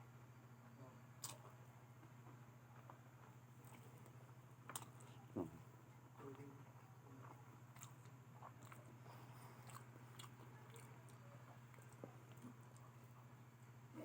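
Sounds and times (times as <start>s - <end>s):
steady low hum: 0.0s - 14.0s
person chewing crunchy food: 1.2s - 1.5s, 3.6s - 5.2s, 7.2s - 13.1s.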